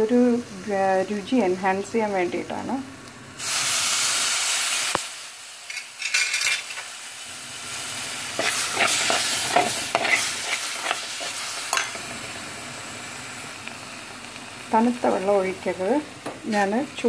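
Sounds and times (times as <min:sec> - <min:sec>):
gravy sizzling in a pan: 0:00.0 - 0:17.0
loud hiss of poured liquid: 0:03.3 - 0:06.0
spoon scraping a pan: 0:08.3 - 0:12.0.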